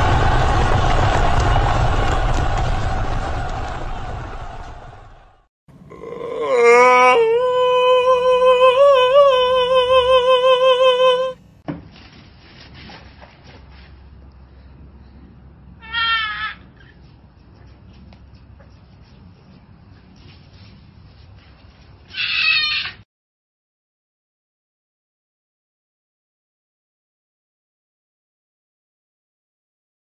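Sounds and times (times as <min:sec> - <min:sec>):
animal long call: 0:05.9 - 0:11.4.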